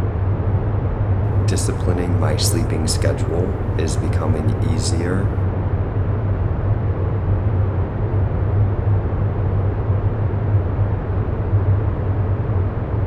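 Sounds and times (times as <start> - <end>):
low rumbling drone: 1.3 - 5.4.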